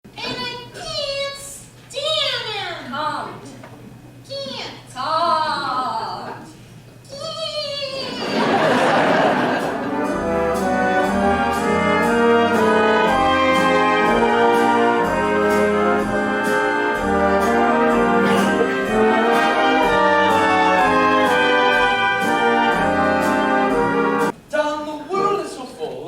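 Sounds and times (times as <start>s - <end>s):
orchestra playing brass-led show tune: 8.4s - 24.3s.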